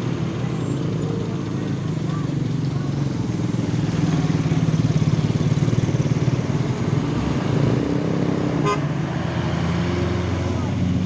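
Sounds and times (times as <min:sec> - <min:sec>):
truck diesel engine labouring: 0:00.0 - 0:11.0.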